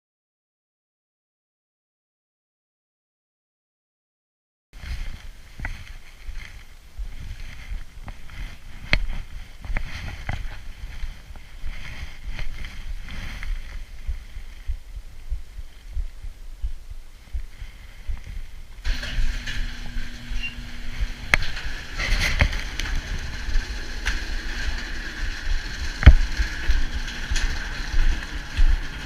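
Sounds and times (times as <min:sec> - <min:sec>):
bike clicks and rattles: 0:04.8 - 0:14.9, 0:17.5 - 0:29.0
bike tyre noise: 0:04.8 - 0:29.0
steady hum: 0:04.8 - 0:29.0
wind buffeting on microphone: 0:04.8 - 0:29.0.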